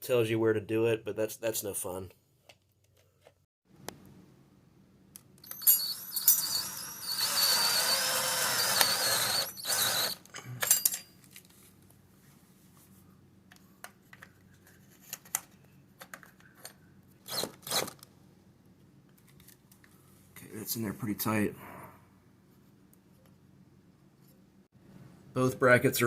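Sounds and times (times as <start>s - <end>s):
power drill driving a screw: 5.6s - 10.2s, 17.3s - 18.0s.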